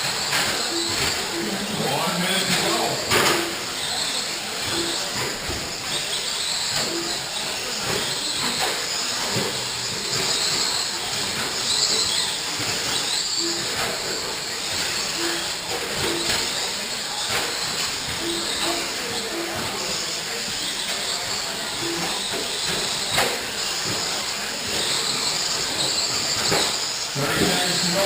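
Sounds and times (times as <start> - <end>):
rc truck motors whining: 0.0 - 28.0
short beeps: 13.4 - 13.8, 18.2 - 19.7, 21.8 - 22.3.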